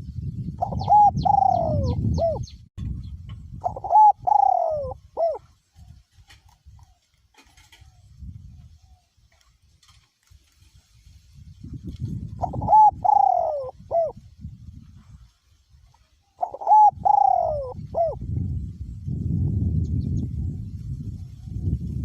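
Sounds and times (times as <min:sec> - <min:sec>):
wind rumbling on microphone: 0:00.0 - 0:22.0
dove cooing: 0:00.6 - 0:02.5, 0:03.6 - 0:08.2, 0:12.4 - 0:14.2, 0:16.2 - 0:18.2.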